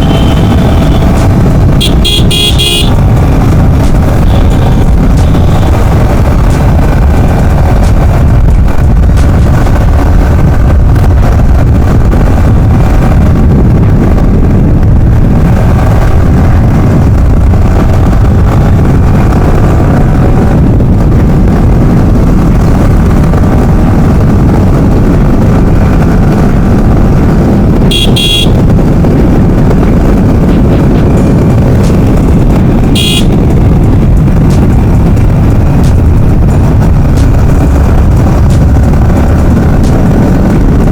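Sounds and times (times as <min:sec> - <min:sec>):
motorcycle horn toot: 0:00.0 - 0:01.2, 0:01.8 - 0:03.0, 0:27.8 - 0:28.7, 0:32.8 - 0:33.5
motorcycle engine drone: 0:00.0 - 0:40.9
wind rushing on microphone: 0:00.0 - 0:40.9.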